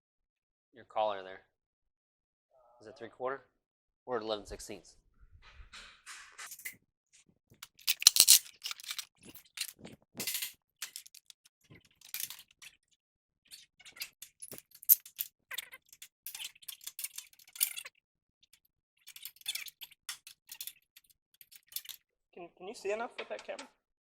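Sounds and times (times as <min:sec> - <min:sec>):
metal hand tools clinking: 0:07.6 - 0:11.3.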